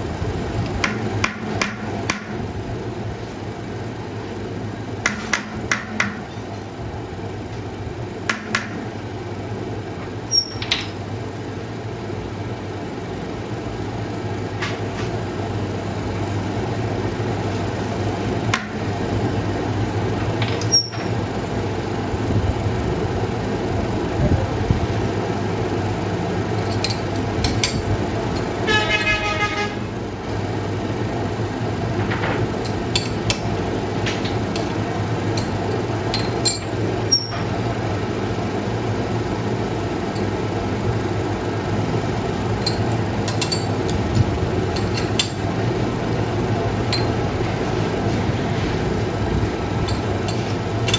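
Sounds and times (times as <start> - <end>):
machinery humming: 0.0 - 50.9
pulsing honk: 28.6 - 30.0.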